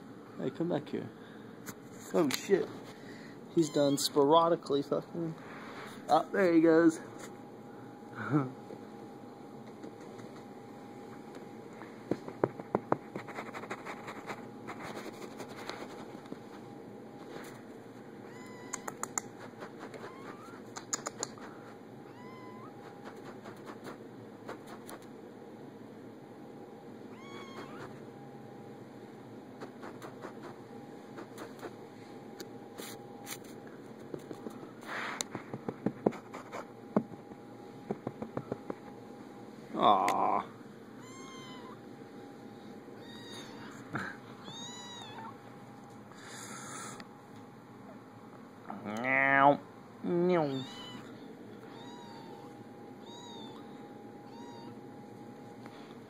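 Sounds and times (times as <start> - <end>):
cat mewing: 18.2 - 19.2, 19.8 - 23.8, 27.1 - 28.0, 41.0 - 41.8, 43.0 - 43.8, 44.4 - 45.4, 50.5 - 54.8
sharp clicks: 18.7 - 19.3, 20.7 - 21.4.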